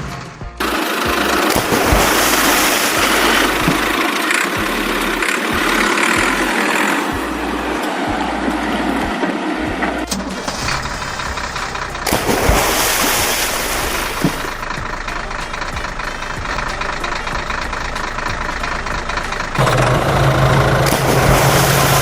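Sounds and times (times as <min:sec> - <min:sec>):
low idling engine hum: 0:00.0 - 0:22.0
vehicle engine running: 0:00.0 - 0:22.0.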